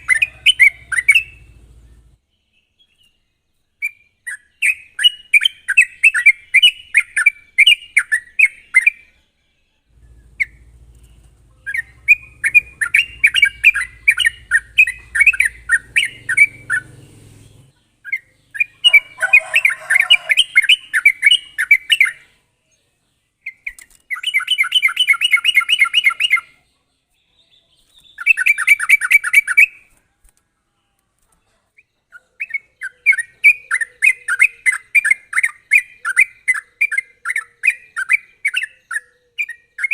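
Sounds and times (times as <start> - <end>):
bird singing chattering notes: 0.0 - 2.2, 9.9 - 22.3.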